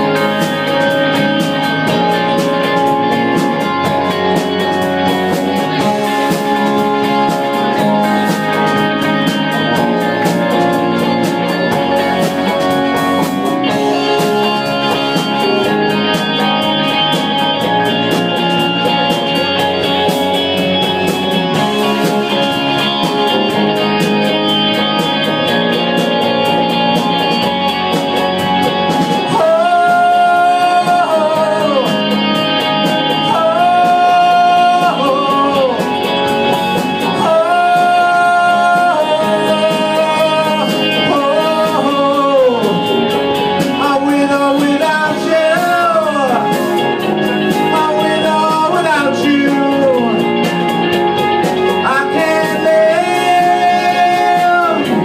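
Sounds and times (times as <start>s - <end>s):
electric guitar: 0.0s - 55.0s
rock band playing: 0.0s - 55.0s.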